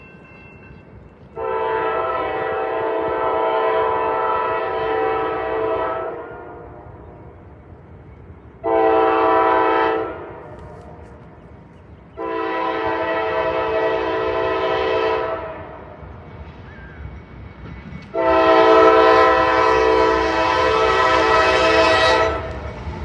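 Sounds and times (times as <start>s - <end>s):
locomotive air horn blasts: 1.4s - 7.0s, 8.6s - 11.1s, 12.2s - 15.9s, 18.2s - 22.6s.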